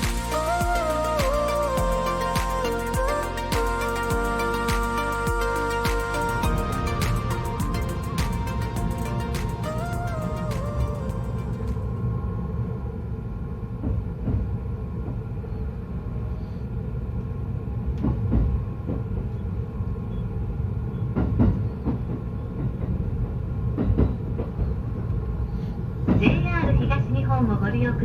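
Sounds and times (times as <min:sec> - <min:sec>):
train rumble from inside: 0:18.0 - 0:28.0.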